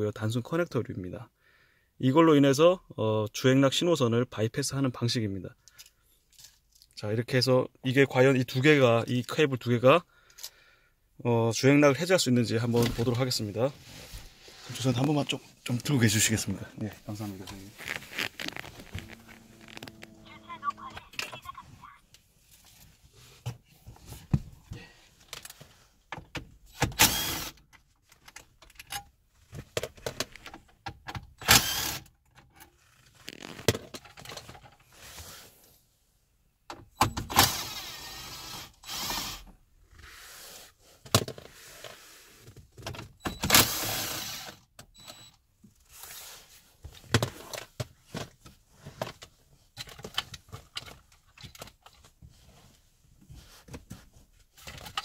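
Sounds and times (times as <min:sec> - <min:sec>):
sharp pops and rasps: 0:17.5 - 0:20.1.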